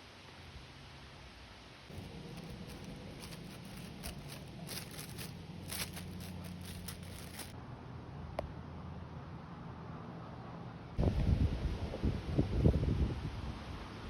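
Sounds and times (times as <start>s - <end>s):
wind blowing through trees: 0.0s - 7.6s
leaves and twigs clicking: 1.9s - 7.6s.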